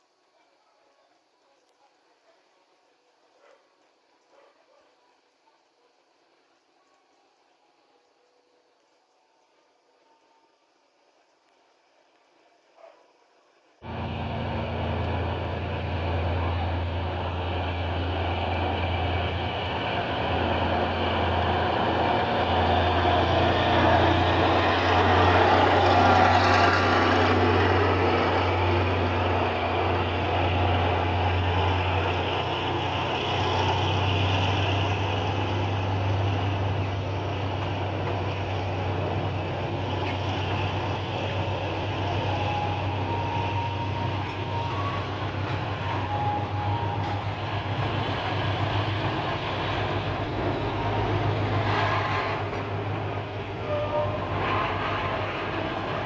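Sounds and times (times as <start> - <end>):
diesel locomotive engine droning: 13.8 - 56.0.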